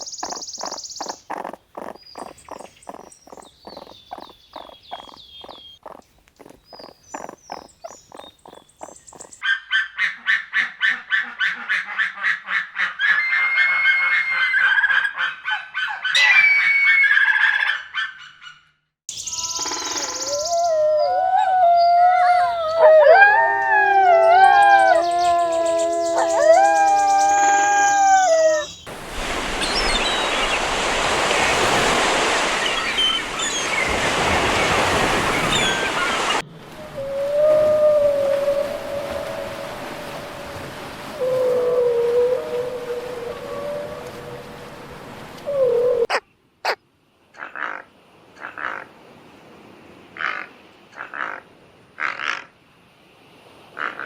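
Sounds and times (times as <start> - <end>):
high chirps: 0.0 - 9.4
long gliding animal calls: 0.0 - 9.4, 19.3 - 46.2
animal calls: 0.0 - 18.6, 19.3 - 46.2.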